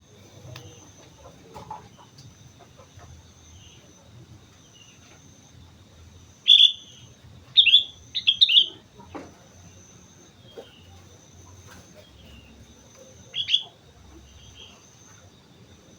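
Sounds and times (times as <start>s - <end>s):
bird calling: 6.4s - 15.3s.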